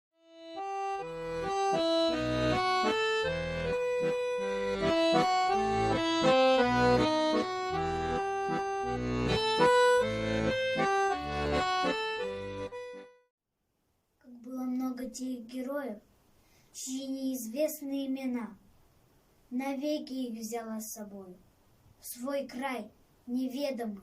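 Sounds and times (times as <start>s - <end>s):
accordion music: 0.2s - 13.3s.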